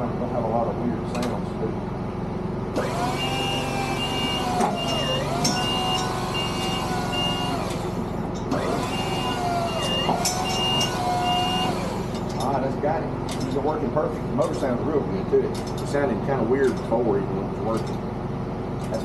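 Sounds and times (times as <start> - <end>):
hydraulic pump motor whining: 2.7 - 12.6
motion alarm beeping: 3.2 - 7.6, 8.9 - 11.8.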